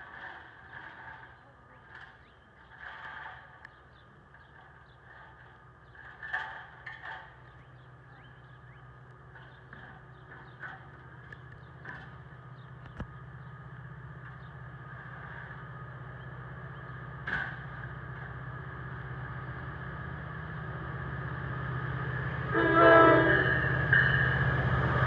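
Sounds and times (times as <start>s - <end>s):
locomotive low drone: 0.0s - 25.0s
locomotive horn blast: 22.5s - 23.7s.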